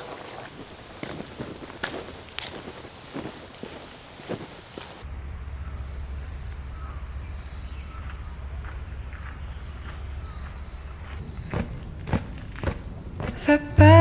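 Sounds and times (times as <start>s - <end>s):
insect chirping: 0.0s - 14.0s
insects buzzing: 0.0s - 14.0s
low steady hum: 5.0s - 14.0s.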